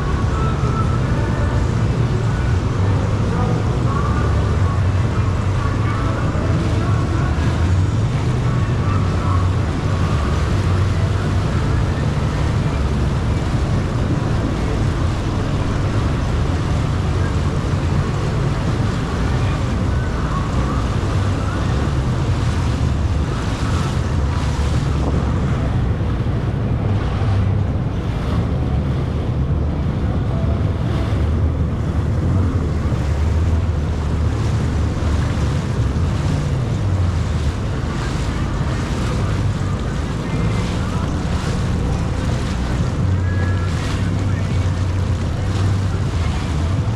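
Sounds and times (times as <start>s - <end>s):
jet ski engine drone: 0.0s - 46.9s
water rushing along hull: 0.0s - 46.9s
wind buffeting microphone: 0.0s - 46.9s.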